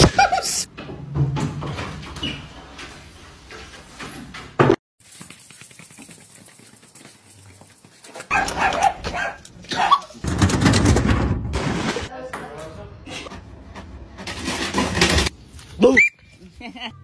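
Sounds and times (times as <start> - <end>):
dog barking: 8.3 - 10.2.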